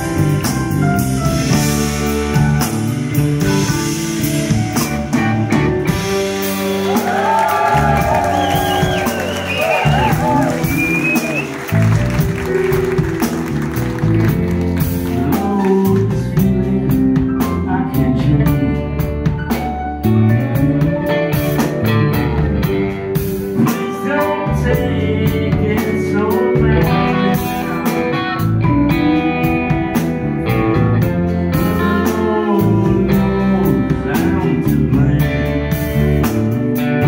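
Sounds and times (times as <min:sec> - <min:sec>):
bass and drums: 0:00.0 - 0:37.0
electric guitars: 0:00.0 - 0:37.0
person singing: 0:15.1 - 0:19.2, 0:20.0 - 0:30.2, 0:31.5 - 0:36.4.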